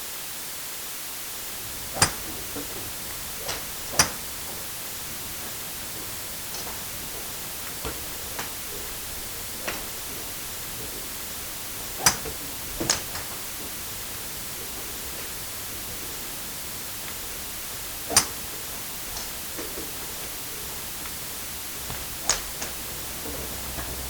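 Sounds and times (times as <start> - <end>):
steady background hiss: 0.0 - 24.0
ball hits: 1.6 - 5.6, 21.2 - 24.0.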